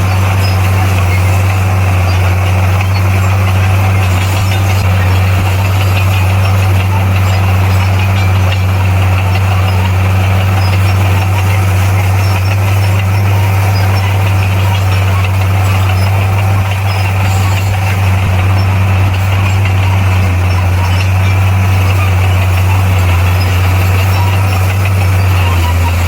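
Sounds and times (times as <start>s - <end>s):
diesel engine droning: 0.0s - 26.0s.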